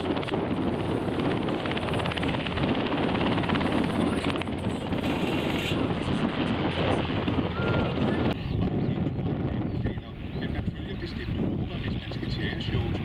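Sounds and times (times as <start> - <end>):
aircraft engine: 0.0 - 13.0.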